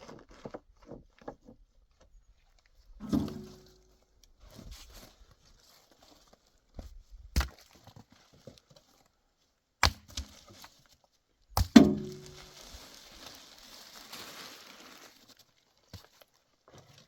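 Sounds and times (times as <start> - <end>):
axe chopping wood: 3.0 - 3.8, 7.4 - 7.7, 9.8 - 10.6, 11.6 - 12.6.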